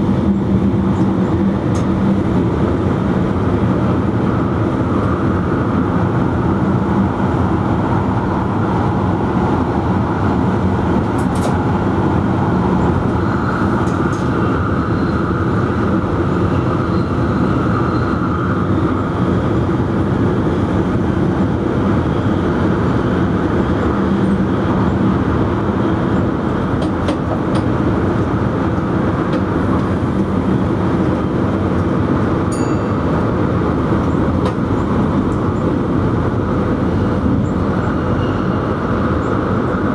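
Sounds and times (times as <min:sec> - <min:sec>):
electric train running at speed: 0:00.0 - 0:39.9.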